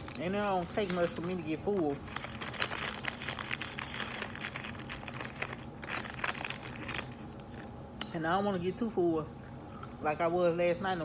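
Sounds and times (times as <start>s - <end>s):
paper wrapper crinkling: 0.0s - 7.7s.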